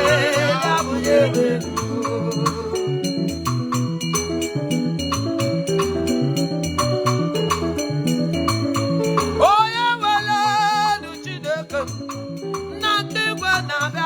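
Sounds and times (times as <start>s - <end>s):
band playing quick beat: 0.0s - 2.8s
person singing with vibrato: 0.0s - 3.3s, 9.4s - 14.0s.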